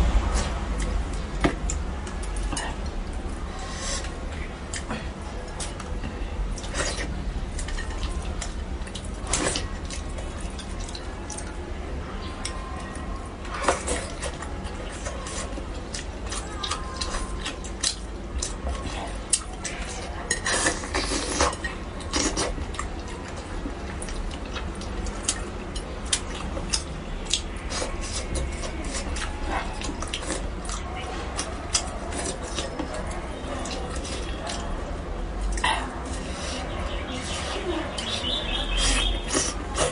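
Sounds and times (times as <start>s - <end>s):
steady low hum: 0.0s - 39.9s
wet mouth eating sounds: 12.4s - 39.9s.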